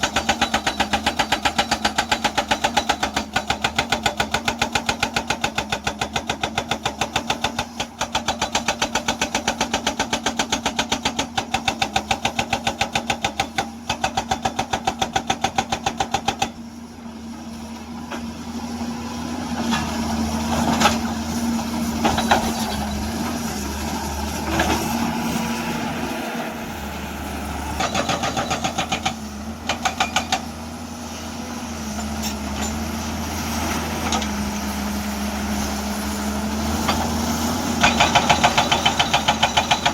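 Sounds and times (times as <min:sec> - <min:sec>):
hydraulic breaker hammering rock: 0:00.0 - 0:16.6, 0:27.8 - 0:30.5, 0:36.8 - 0:39.9
diesel engine humming: 0:16.9 - 0:39.9.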